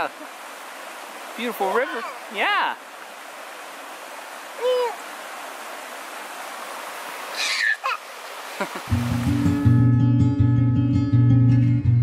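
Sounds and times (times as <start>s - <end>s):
river water rushing: 0.0s - 9.9s
short voice calls: 4.6s - 5.0s.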